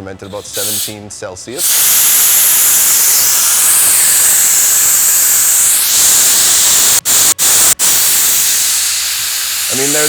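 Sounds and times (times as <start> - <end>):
gas hissing from release valve: 0.1 - 10.0.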